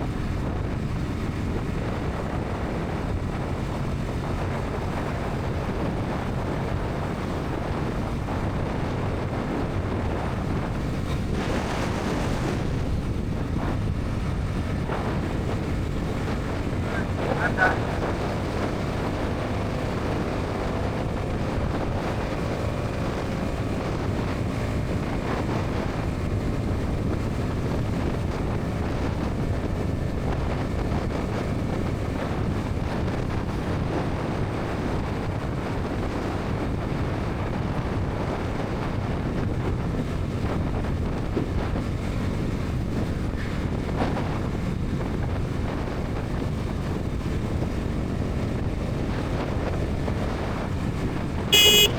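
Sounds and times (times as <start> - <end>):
wind rushing over microphone: 0.0 - 51.9
motorcycle engine running: 46.2 - 51.9.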